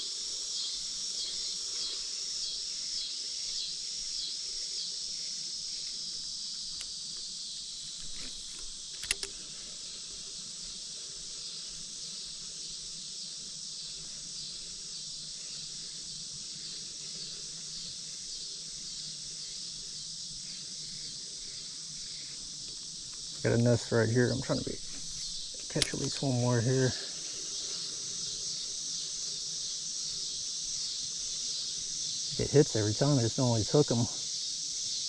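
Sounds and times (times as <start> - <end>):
insects shrilling: 0.0 - 35.0
sharp clicks: 8.0 - 9.4, 24.8 - 26.3.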